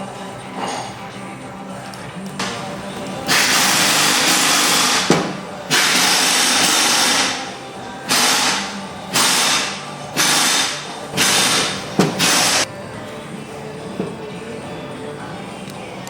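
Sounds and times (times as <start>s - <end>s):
background music: 0.0s - 16.0s
power tool running in bursts: 3.3s - 7.5s, 8.1s - 12.6s.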